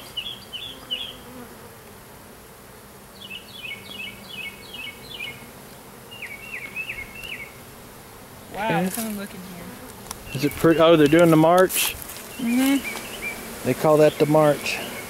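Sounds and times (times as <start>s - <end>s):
bird chirping: 0.0s - 1.3s, 3.2s - 5.5s, 6.1s - 7.6s, 10.2s - 11.4s, 12.3s - 15.0s
bee swarm buzzing: 0.0s - 15.0s.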